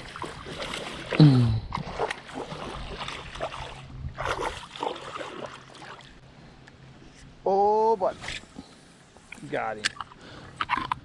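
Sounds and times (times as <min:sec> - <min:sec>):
water splashing and sloshing: 0:00.0 - 0:06.3.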